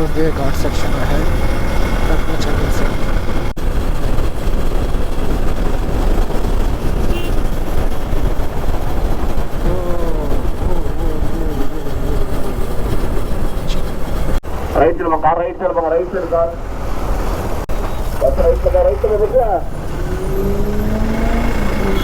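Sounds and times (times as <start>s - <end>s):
wind rush on microphone: 0.0s - 14.6s
motorcycle engine rumble: 0.0s - 22.0s.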